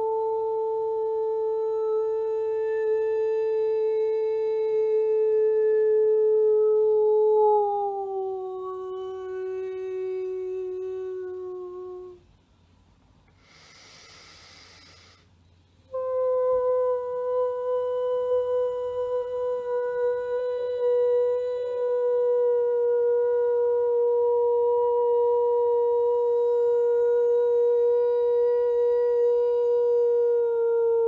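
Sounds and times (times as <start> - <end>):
woman singing long held tones: 0.0 - 12.5, 15.7 - 31.0
breath: 13.3 - 15.4.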